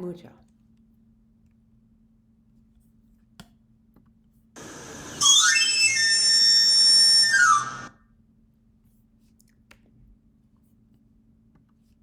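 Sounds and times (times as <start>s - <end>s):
background hiss: 4.6s - 7.9s
shrill panpipe whistle: 4.6s - 7.9s.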